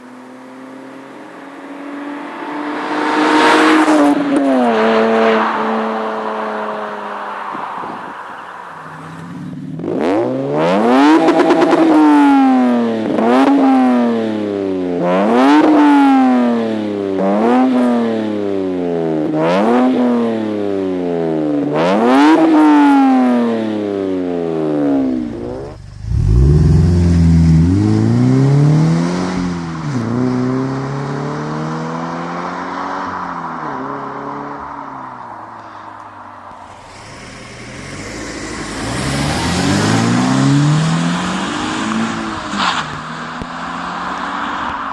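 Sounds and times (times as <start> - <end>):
car engine revving: 0.0 - 35.8, 36.5 - 44.9
lower-pitched engine revving: 24.4 - 32.9, 36.8 - 44.0.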